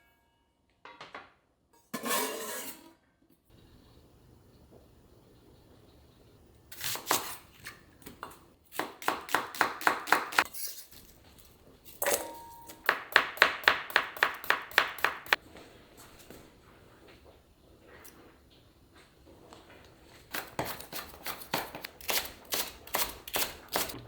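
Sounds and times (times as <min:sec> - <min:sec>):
knife chopping on cutting board: 0:08.0 - 0:10.5.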